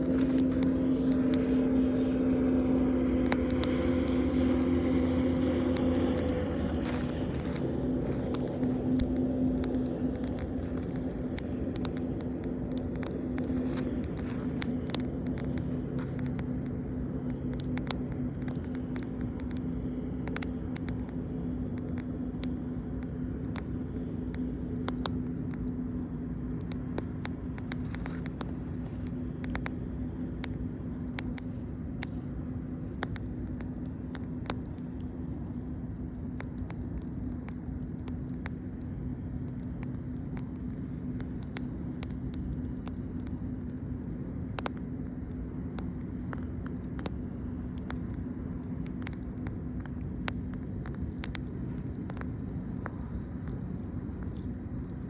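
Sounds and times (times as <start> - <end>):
campfire wood crackling: 0.0 - 55.0
constant low hum: 0.0 - 55.0
steady rushing noise: 0.0 - 55.0.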